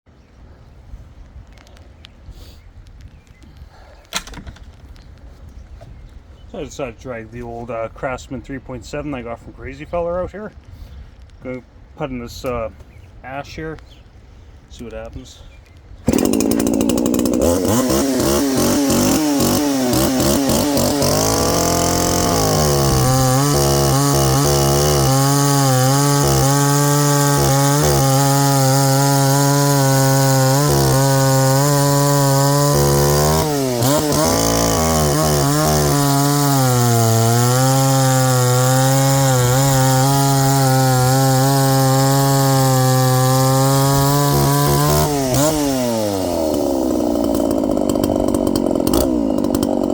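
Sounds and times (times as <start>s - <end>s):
chainsaw cutting wood: 4.1s - 4.9s, 16.0s - 49.9s.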